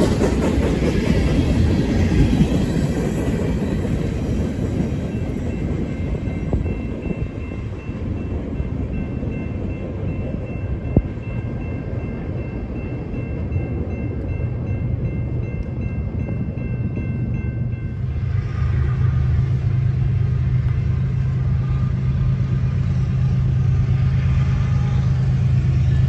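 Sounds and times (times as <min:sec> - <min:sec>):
freight train rumbling: 0:00.0 - 0:26.0
crossing bells ringing: 0:04.0 - 0:18.4.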